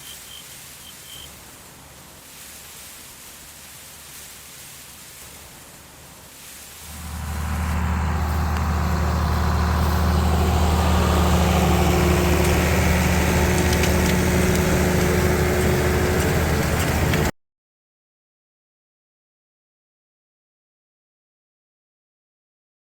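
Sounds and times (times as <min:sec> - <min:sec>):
tractor engine humming: 0:06.8 - 0:17.3.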